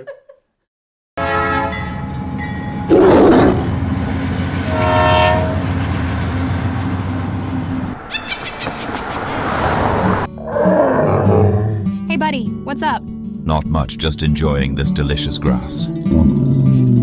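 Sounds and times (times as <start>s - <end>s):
train horn blast: 1.2s - 2.2s, 3.7s - 6.4s
train rumbling and clattering: 3.7s - 10.3s.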